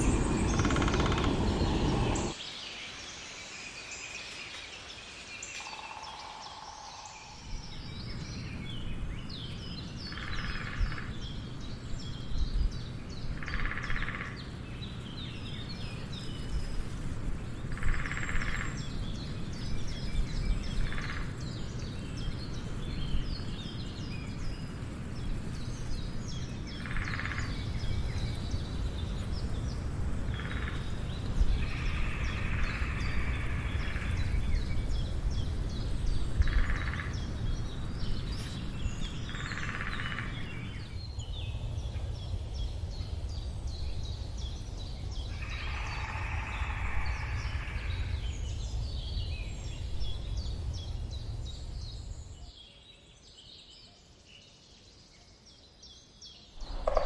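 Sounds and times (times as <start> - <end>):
steady low rumble: 0.0 - 2.4, 14.4 - 52.4, 56.6 - 57.0
woodpecker drumming: 0.0 - 2.4, 56.6 - 57.0
birds chirping: 0.0 - 16.8, 56.5 - 57.0.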